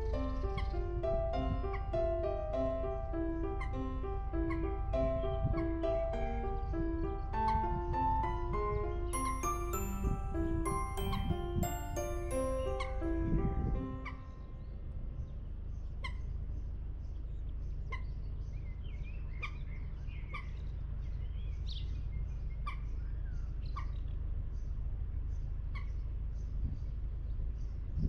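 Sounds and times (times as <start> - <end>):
music: 0.0 - 14.7
bird warbling song: 0.0 - 28.0
boat engine rumble: 0.0 - 28.0.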